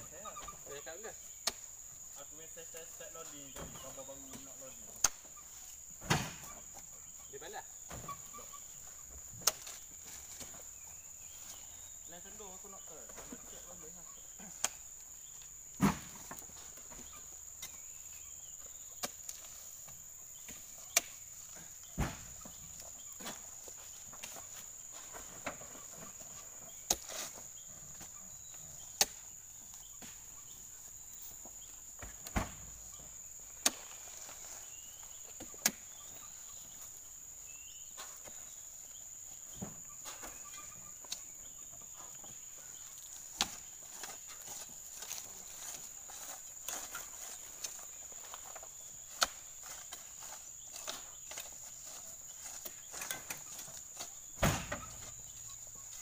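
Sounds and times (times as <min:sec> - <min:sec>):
insects droning: 0:00.0 - 0:56.0
heavy fruit bunches thudding: 0:21.7 - 0:24.0, 0:54.3 - 0:55.4.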